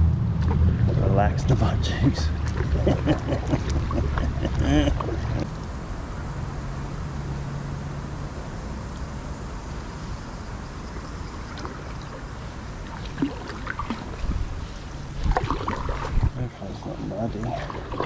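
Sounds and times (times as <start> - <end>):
water noise: 0.0 - 6.6, 7.9 - 18.0
small splashes and knocks: 2.3 - 5.5, 11.3 - 16.4, 17.3 - 18.0
wind noise: 12.4 - 16.5.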